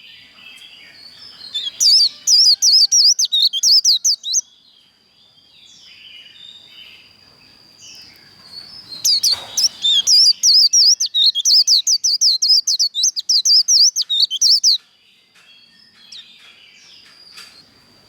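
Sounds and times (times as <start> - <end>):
soft bird twittering: 0.0 - 4.5, 7.8 - 14.8
bird singing rapid high notes: 1.4 - 4.4, 8.9 - 14.8.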